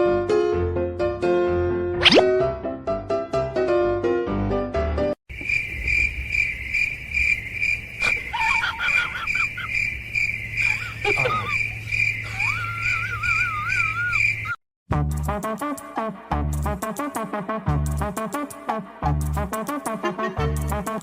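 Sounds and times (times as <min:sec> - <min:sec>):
cricket chirping: 0:05.3 - 0:14.6.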